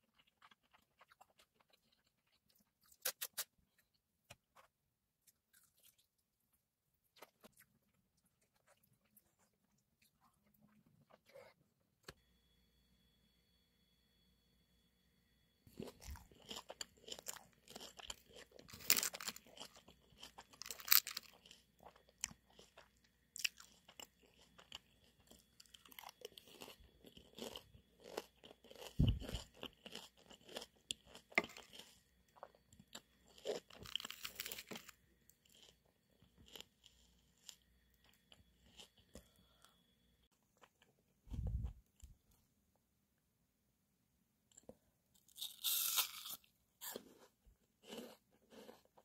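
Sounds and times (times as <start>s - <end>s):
crunchy chewing of vegetables: 0.0s - 6.3s, 15.7s - 39.8s, 44.5s - 49.0s.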